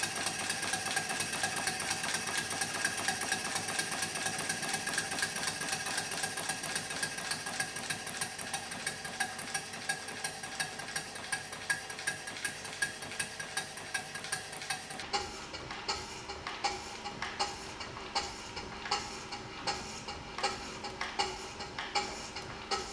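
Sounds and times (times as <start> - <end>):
steam engine exhaust beats: 0.0 - 22.9.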